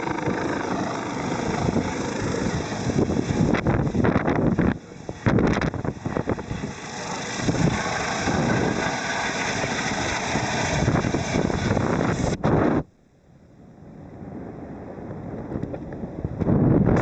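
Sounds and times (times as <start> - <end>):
helicopter rotor and turbine: 0.0 - 12.9, 13.7 - 17.0
wind gusting over microphone: 0.0 - 12.9, 13.6 - 17.0.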